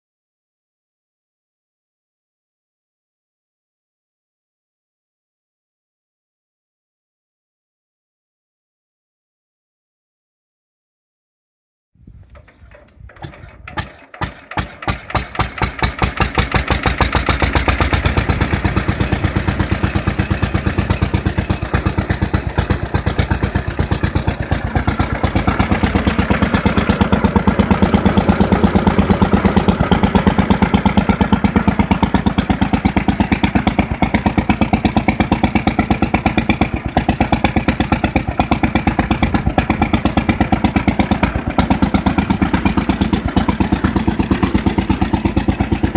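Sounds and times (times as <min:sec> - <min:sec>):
petrol engine starting and running: 0:12.1 - 0:45.9.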